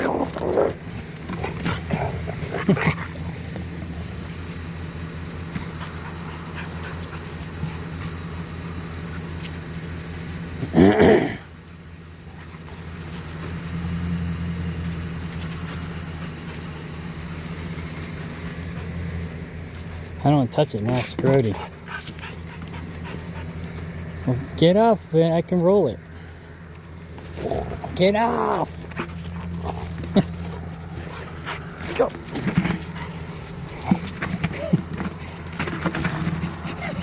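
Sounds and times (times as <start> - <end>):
dog growling: 0.0 - 3.7, 10.6 - 11.5, 27.3 - 35.3
steady low hum: 0.0 - 37.0.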